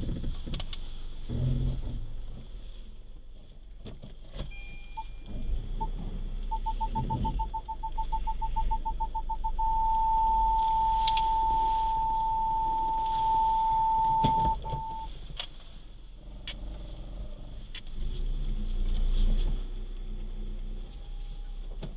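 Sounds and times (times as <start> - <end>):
car idling hum: 0.0 - 21.9
parking sensor beeps: 4.5 - 15.1.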